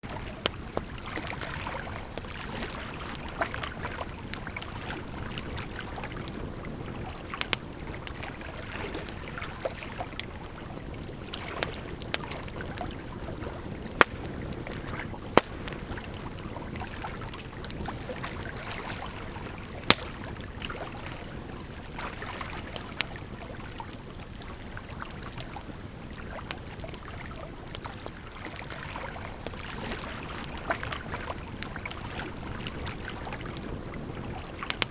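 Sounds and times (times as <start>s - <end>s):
wood fire crackling: 0.1s - 22.0s.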